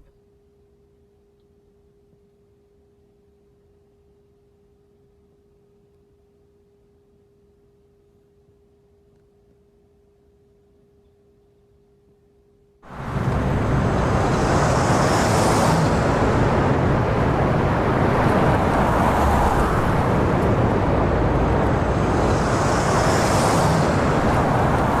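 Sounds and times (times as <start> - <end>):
road traffic rushing: 12.9 - 25.0.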